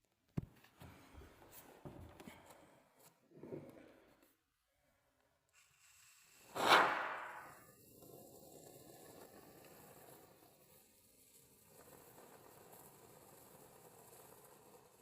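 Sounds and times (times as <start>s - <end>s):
loud crack: 6.5s - 7.7s.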